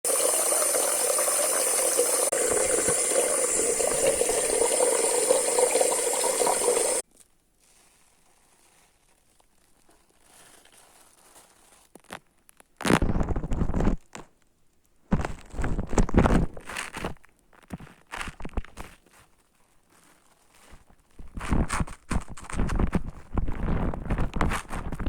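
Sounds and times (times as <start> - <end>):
water running in bathroom: 0.0 - 7.0.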